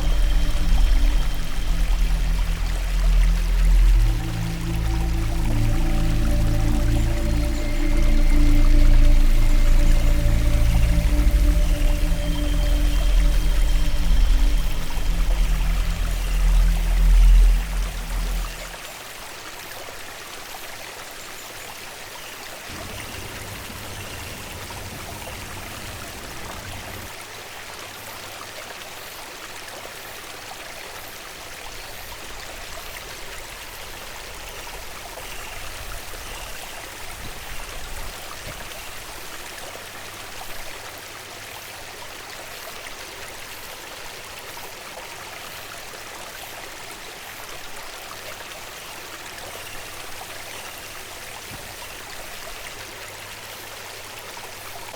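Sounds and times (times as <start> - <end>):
faint low rumble: 0.0 - 18.8, 22.7 - 27.1
stream water flowing: 0.0 - 54.9.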